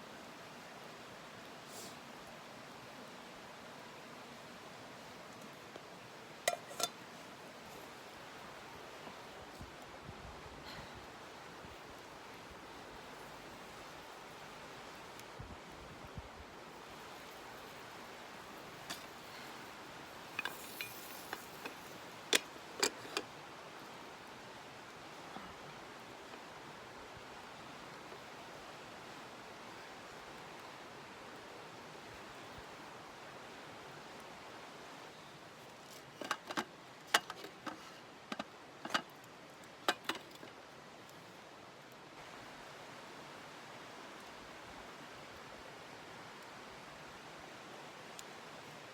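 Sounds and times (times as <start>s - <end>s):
steady rushing hiss: 0.0s - 48.9s
light metallic clinks: 16.8s - 23.3s.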